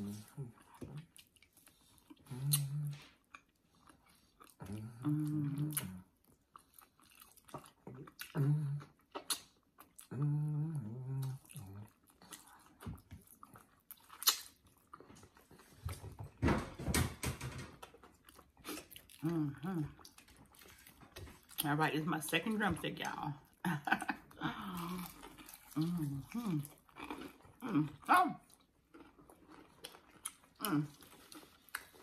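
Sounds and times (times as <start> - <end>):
person chewing: 0.0 - 16.0, 17.8 - 21.6, 23.4 - 32.0
person humming mm: 2.2 - 3.1, 4.6 - 6.0, 8.4 - 8.9, 10.1 - 11.8
lip-smacking clicks: 14.2 - 14.5.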